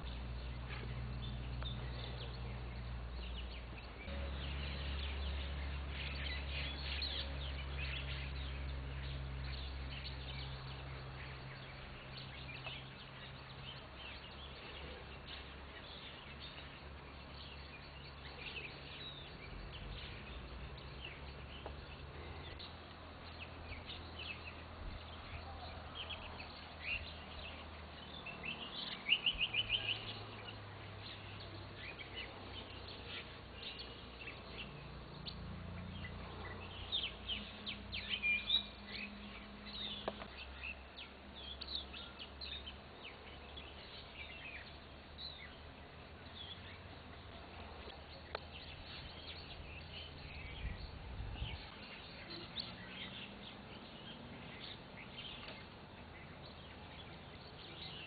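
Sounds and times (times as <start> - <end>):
low hum: 0.0 - 38.2
small birds chirping: 0.0 - 58.0.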